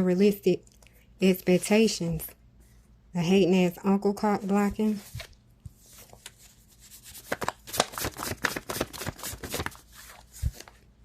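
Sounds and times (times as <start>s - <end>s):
deck of cards shuffling: 4.5s - 10.8s.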